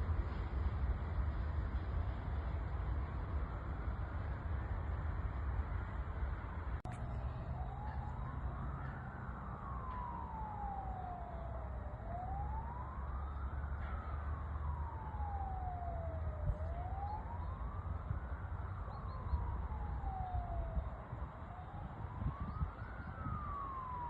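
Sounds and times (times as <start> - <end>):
siren wailing: 6.9 - 24.0.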